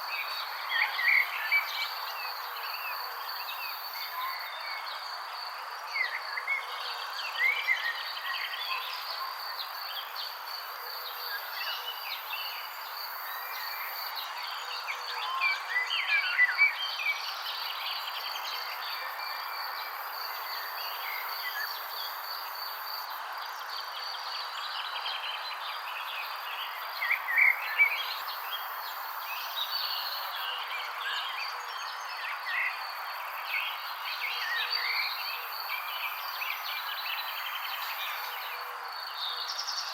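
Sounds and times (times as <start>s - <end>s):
background hiss: 17.2s - 31.0s.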